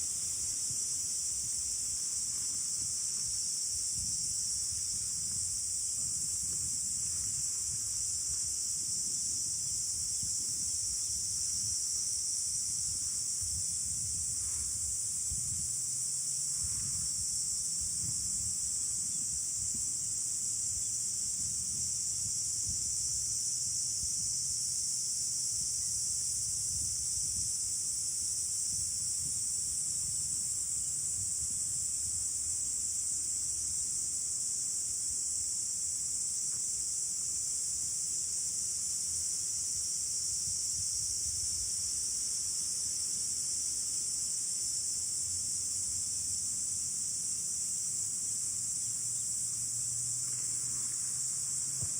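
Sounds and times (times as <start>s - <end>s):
insects droning: 0.0s - 51.9s
wind on microphone: 2.7s - 15.9s, 16.5s - 20.1s, 25.5s - 32.3s.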